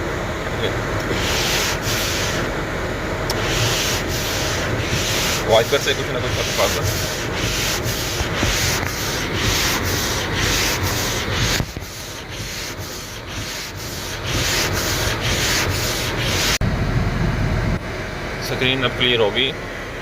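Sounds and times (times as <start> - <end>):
car heater fan running: 0.0 - 20.0
wipers scraping icy windscreen: 1.0 - 2.5, 3.3 - 16.6.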